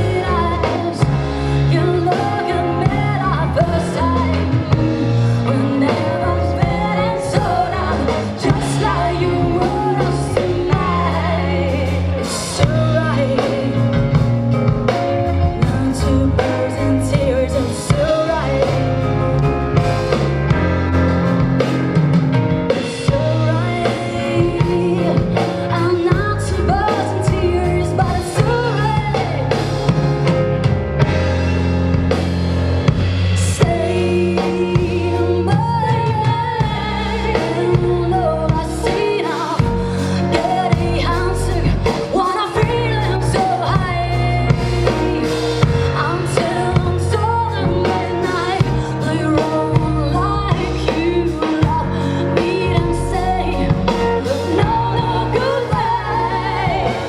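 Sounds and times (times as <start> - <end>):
bass guitar: 0.0 - 57.0
drum kit with cymbal hits: 0.0 - 57.0
person singing: 23.0 - 29.8, 33.4 - 57.0.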